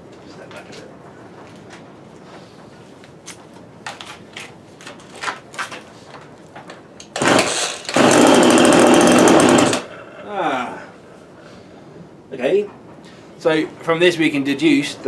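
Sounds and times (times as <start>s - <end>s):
chainsaw engine running: 7.2s - 9.9s.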